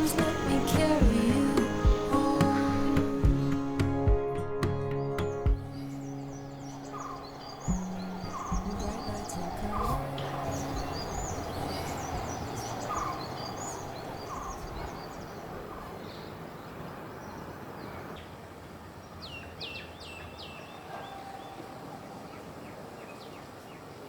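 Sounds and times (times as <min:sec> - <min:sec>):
soft background music: 0:00.0 - 0:14.2
small birds chirping: 0:00.0 - 0:18.4.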